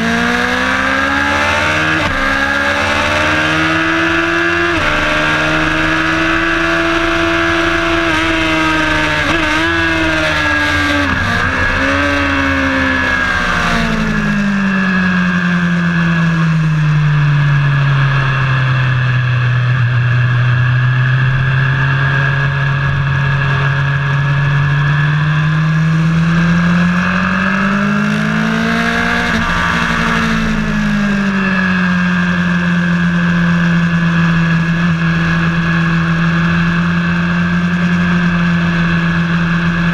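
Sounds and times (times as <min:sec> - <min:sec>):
wind and road noise: 0:00.0 - 0:39.9
race car engine shifting gears: 0:01.2 - 0:14.4.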